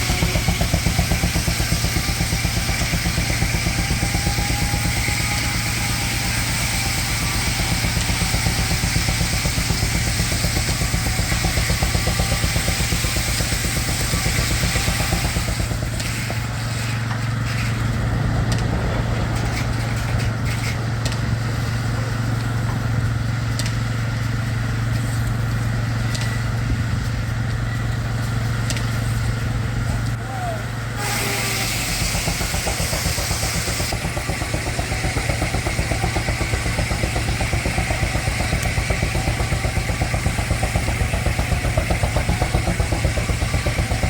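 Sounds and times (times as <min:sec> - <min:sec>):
saw blade cutting log: 0:00.0 - 0:17.9, 0:31.0 - 0:44.0
steam engine exhaust beating: 0:00.0 - 0:44.0.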